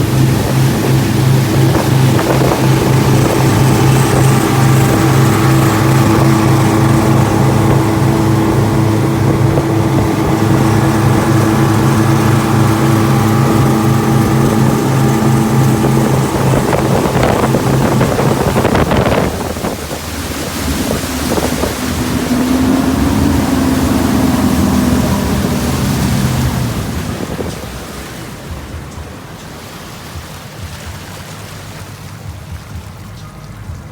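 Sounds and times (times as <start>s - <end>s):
boat engines running: 0.0s - 33.9s
water rushing past: 0.0s - 33.9s
wind buffeting microphone: 0.0s - 33.9s.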